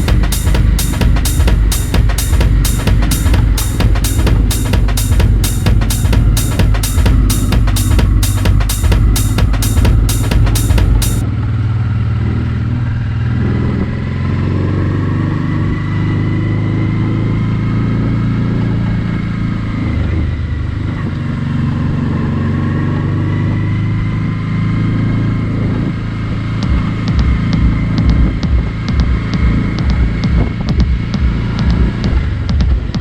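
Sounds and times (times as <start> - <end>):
music drumbeat: 0.0 - 11.2, 26.6 - 33.0
wind and road noise: 0.0 - 33.0.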